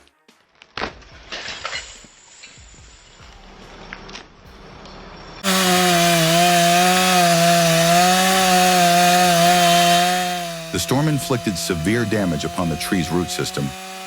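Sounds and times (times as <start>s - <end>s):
chainsaw running: 5.4s - 14.0s.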